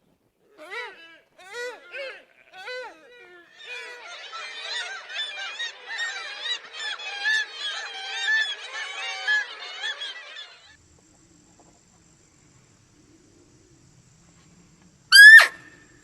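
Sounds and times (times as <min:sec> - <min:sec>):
flock of birds calling: 0:02.6 - 0:10.7, 0:15.1 - 0:15.7
faint low hum: 0:10.7 - 0:16.0.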